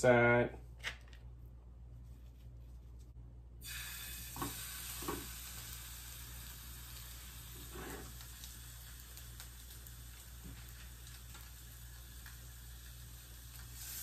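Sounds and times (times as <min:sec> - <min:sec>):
fish sizzling in a frying pan: 0:03.6 - 0:14.0.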